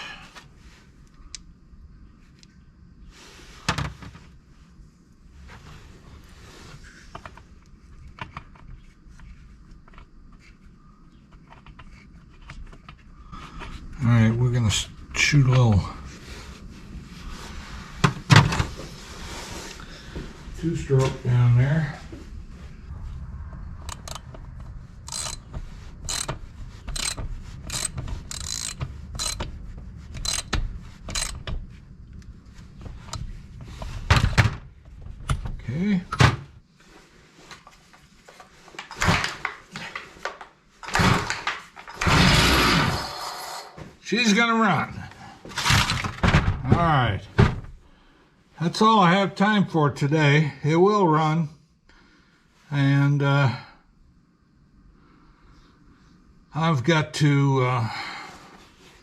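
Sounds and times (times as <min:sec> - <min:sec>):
tools and parts clicking: 0:23.8 - 0:24.3, 0:25.1 - 0:31.6
chainsaw recoil starter pulled: 0:25.1 - 0:25.5, 0:26.1 - 0:29.4, 0:30.2 - 0:30.5, 0:31.1 - 0:31.4.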